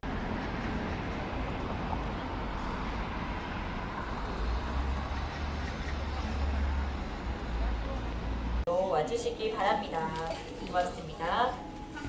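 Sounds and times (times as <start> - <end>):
moving vehicle rumble: 0.0 - 8.7.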